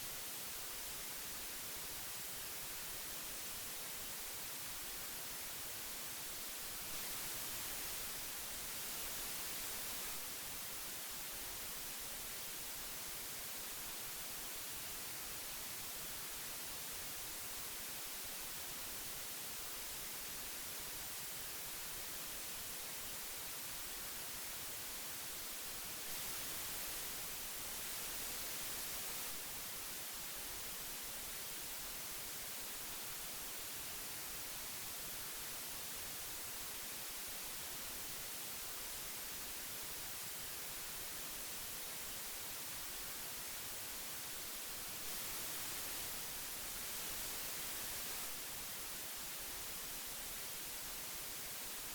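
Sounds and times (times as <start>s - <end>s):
analogue tape hiss: 0.0s - 51.9s.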